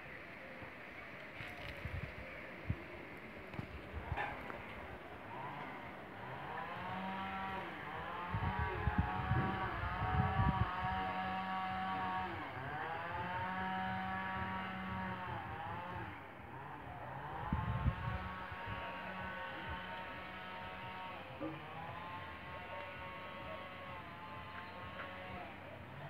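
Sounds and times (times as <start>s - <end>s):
motor revving: 3.5s - 26.0s.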